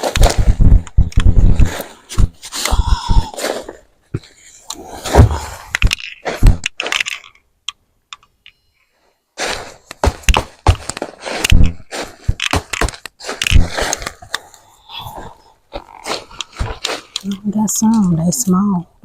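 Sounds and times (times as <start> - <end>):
knocks thunks and scraping: 0.0 - 7.2, 9.4 - 14.4
hands digging through soil: 9.4 - 18.5.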